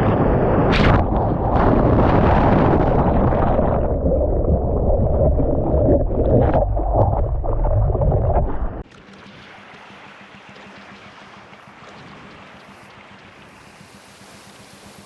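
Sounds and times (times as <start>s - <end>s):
rumbling noise buffeting microphone: 0.0s - 8.9s
faint hiss: 12.6s - 15.0s.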